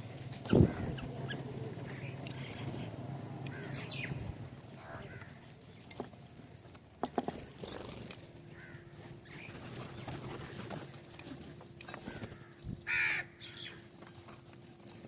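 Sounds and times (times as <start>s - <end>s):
birds tapping at feeder: 0.3s - 12.4s
harsh bird call: 0.4s - 5.2s.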